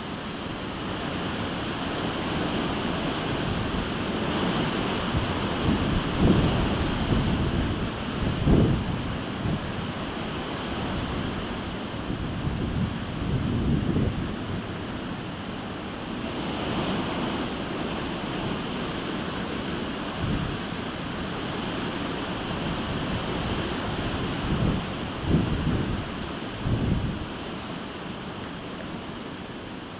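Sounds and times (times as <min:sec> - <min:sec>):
wind gusts buffeting microphone: 0:01.5 - 0:15.2, 0:20.0 - 0:27.5
strong wind blowing: 0:02.9 - 0:15.0, 0:20.1 - 0:20.7, 0:21.5 - 0:27.5.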